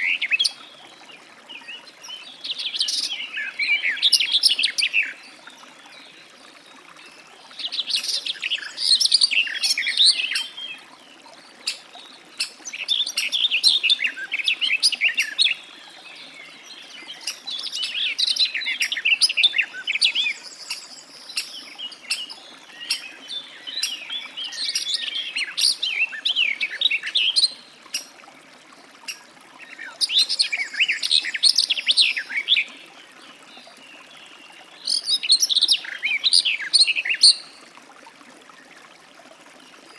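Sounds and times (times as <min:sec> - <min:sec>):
bird warbling song: 0:07.5 - 0:28.2, 0:29.0 - 0:37.6.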